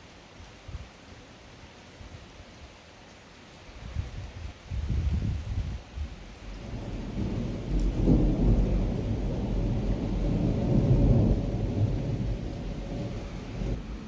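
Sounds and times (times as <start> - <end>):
rain: 0.0 - 14.0
thunder rumbling: 6.4 - 14.0.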